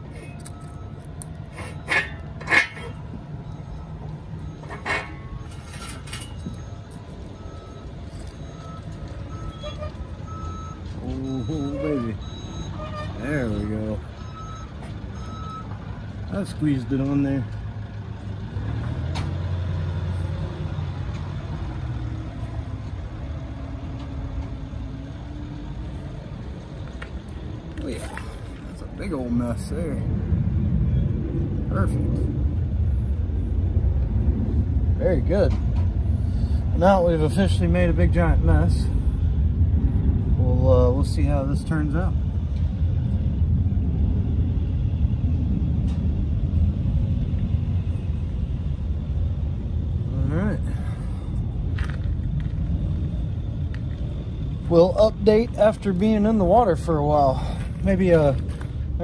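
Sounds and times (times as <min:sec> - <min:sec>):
large vehicle engine rumbling: 0:00.0 - 0:59.0.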